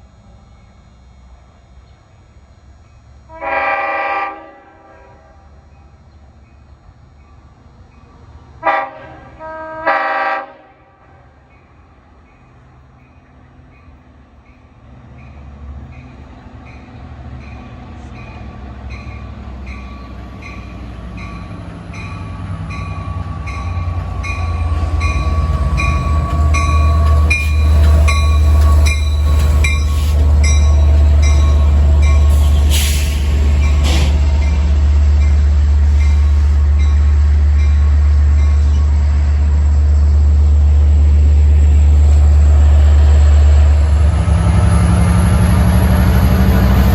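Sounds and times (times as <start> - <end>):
diesel train engine rumble: 0.0 - 46.9
train bell ringing: 11.4 - 39.0
train wheel squeal: 11.6 - 40.3.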